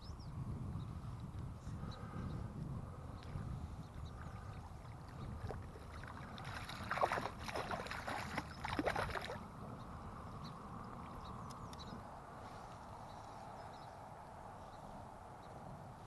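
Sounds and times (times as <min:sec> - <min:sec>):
steady low rumble: 0:00.0 - 0:16.0
water splashing and sloshing: 0:04.2 - 0:09.5.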